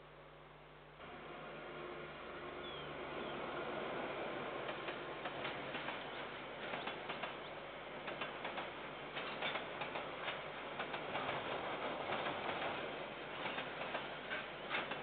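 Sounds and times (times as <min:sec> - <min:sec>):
train rumble: 0:01.0 - 0:15.0
train wheels clattering over rails: 0:03.9 - 0:15.0.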